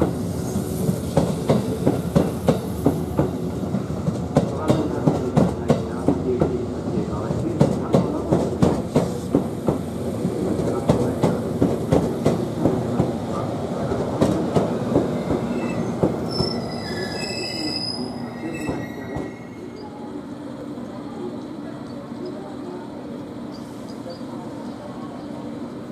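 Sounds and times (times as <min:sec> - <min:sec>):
train wheels clacking over rail joints: 0:07.5 - 0:09.9
high wheel squeal: 0:15.4 - 0:19.8.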